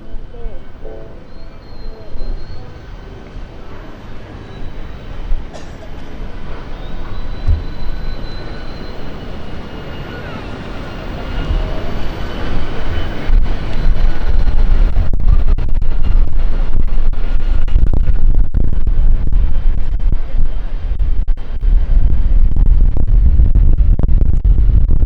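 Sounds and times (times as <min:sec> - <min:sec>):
street ambience: 0:00.0 - 0:17.6
wind buffeting microphone: 0:00.0 - 0:25.0.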